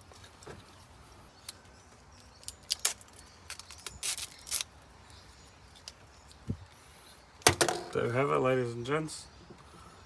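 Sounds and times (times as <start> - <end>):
vinyl film crinkling and clicking: 2.2 - 4.8.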